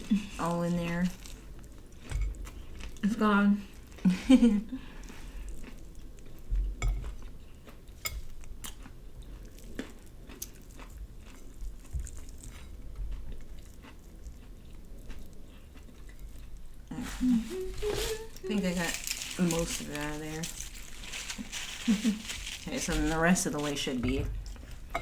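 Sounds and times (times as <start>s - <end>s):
chewing and biting food: 4.8s - 17.0s, 18.3s - 23.2s.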